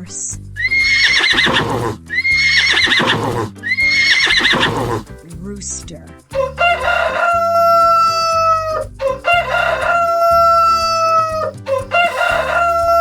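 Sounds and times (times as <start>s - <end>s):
background music: 0.0s - 13.0s
rooster crowing: 6.3s - 13.0s.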